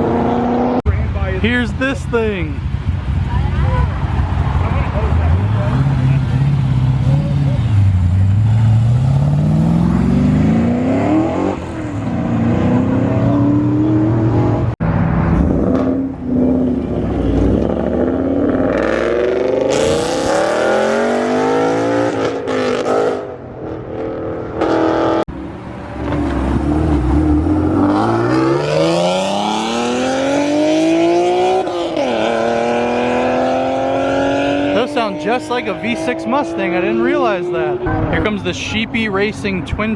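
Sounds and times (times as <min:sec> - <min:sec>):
car engines revving through gears: 0:00.0 - 0:00.9, 0:02.6 - 0:38.2.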